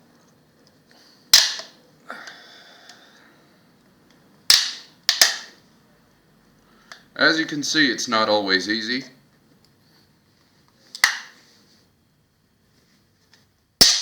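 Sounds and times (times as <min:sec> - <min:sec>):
plastic case snapping: 0:11.0 - 0:11.3.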